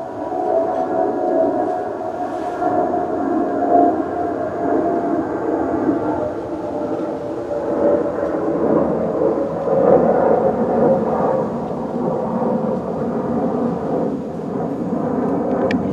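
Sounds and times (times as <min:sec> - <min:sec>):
wind through palm leaves: 0:00.0 - 0:05.0
airplane rumble overhead: 0:00.0 - 0:15.9.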